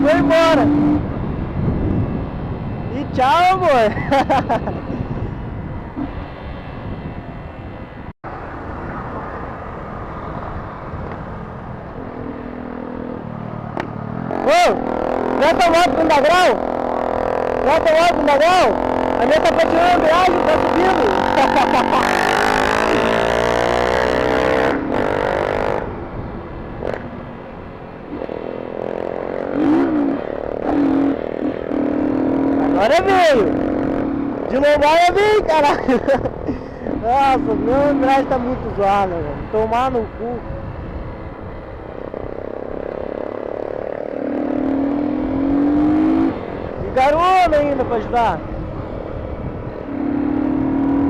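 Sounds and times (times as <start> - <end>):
motorcycle engine revving: 0.0 - 7.9, 10.0 - 51.0
motorcycle engine running: 11.5 - 26.0.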